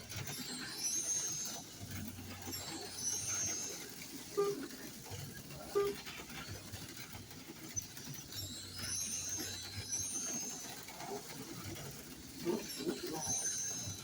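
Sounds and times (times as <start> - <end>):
slot car motors whining: 0.0 - 14.0.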